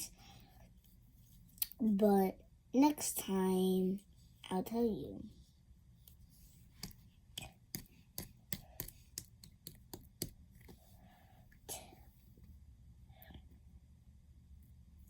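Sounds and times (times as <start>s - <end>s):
soft rustle: 0.1s - 1.6s, 5.2s - 7.4s.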